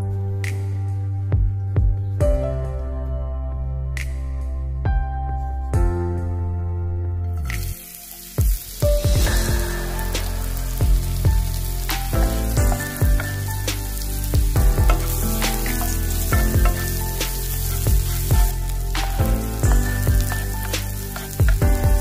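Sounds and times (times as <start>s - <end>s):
background music with steady beat: 0.0s - 22.0s
onions sizzling in hot oil: 7.6s - 22.0s
wooden spatula stirring: 14.4s - 18.6s, 19.6s - 22.0s.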